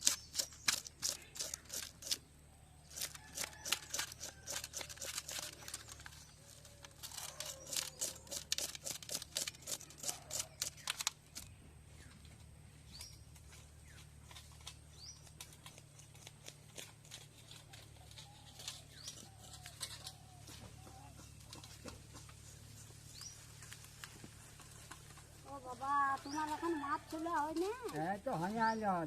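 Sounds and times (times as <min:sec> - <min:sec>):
blade scraping fish scales: 0:00.0 - 0:02.2, 0:02.8 - 0:11.5.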